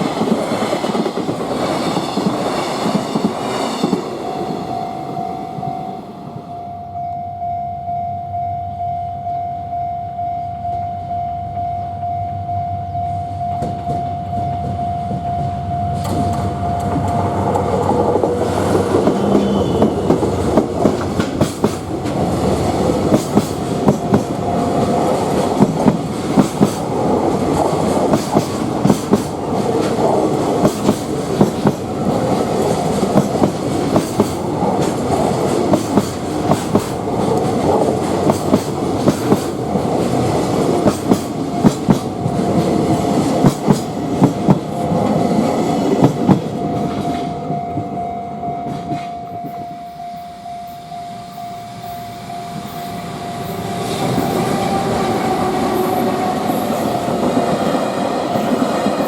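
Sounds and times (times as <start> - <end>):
train wheels clattering on rail joints: 0.0 - 4.2, 13.6 - 47.9
freight train passing: 0.0 - 59.0.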